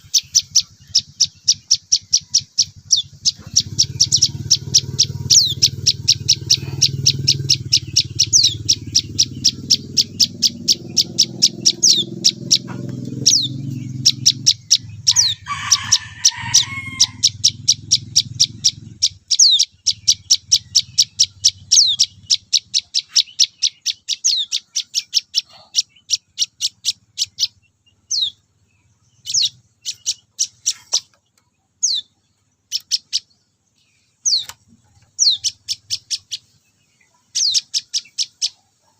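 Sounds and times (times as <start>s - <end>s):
young bird begging chirps: 0.0s - 31.2s, 31.8s - 33.4s, 34.0s - 38.9s
low rumble: 0.2s - 15.5s.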